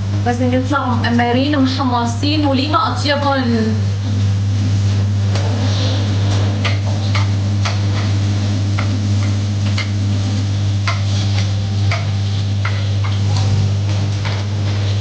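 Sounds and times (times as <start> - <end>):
steady low hum: 0.0 - 15.0
onions frying in hot oil: 3.9 - 15.0.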